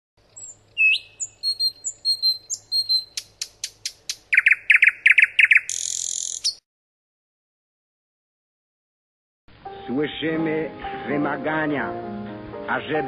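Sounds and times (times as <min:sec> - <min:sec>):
nightingale singing: 0:00.2 - 0:06.6.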